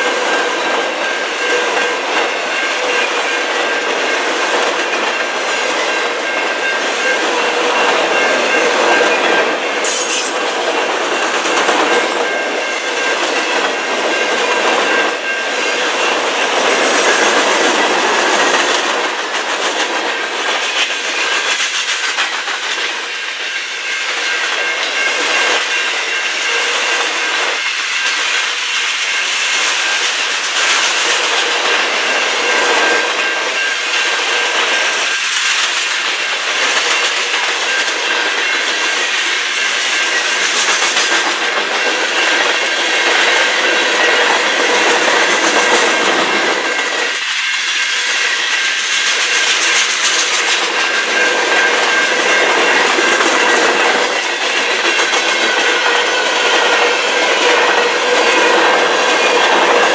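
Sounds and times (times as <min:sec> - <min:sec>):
train wheels clattering over rails: 0:00.0 - 0:59.9
high-pitched metallic tones: 0:04.8 - 0:19.2, 0:23.0 - 0:59.9.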